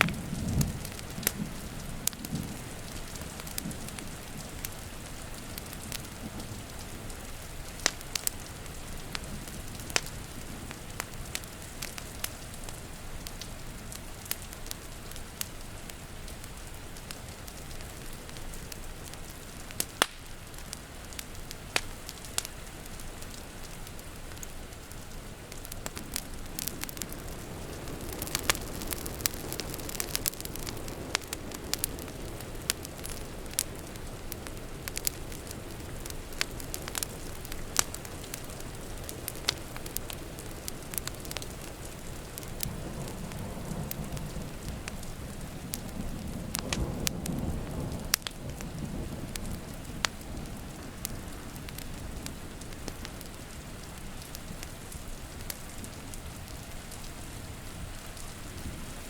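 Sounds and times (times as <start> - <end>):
thunder rumbling: 0.0 - 7.6, 24.4 - 53.6
rain hissing: 0.0 - 59.0
wood fire crackling: 0.0 - 59.0.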